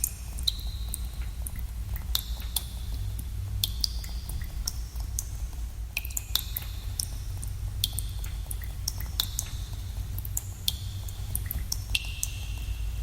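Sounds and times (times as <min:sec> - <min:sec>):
water drops plinking into pools: 0:00.0 - 0:05.3, 0:05.9 - 0:12.8
steady low rumble: 0:00.0 - 0:13.0.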